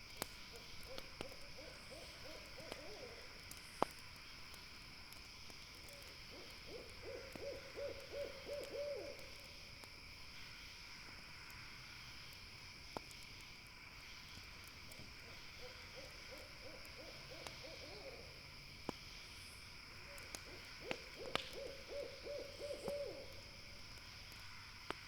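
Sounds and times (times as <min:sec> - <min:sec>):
campfire crackling: 0:00.0 - 0:25.0
owl hooting: 0:00.5 - 0:03.3, 0:06.3 - 0:09.3, 0:15.6 - 0:18.3, 0:20.1 - 0:23.5.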